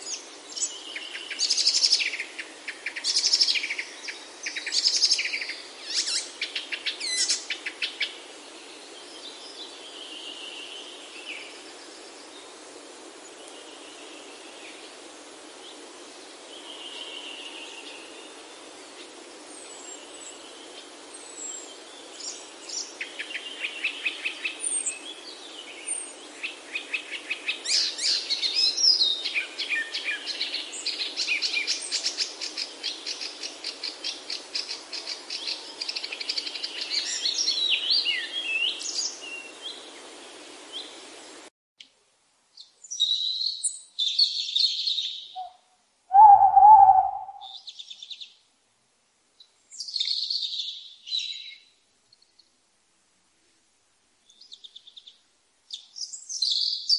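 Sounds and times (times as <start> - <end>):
songbirds trilling and chirping: 0.0 - 41.4, 42.6 - 48.5, 49.4 - 52.6
soft steady hiss: 0.0 - 56.9
low-pitched bird call: 45.3 - 47.6.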